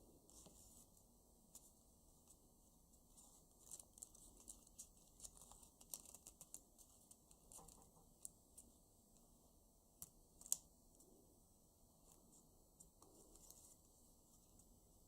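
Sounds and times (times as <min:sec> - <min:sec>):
paper banknote being folded: 0:03.1 - 0:08.7, 0:10.0 - 0:10.6.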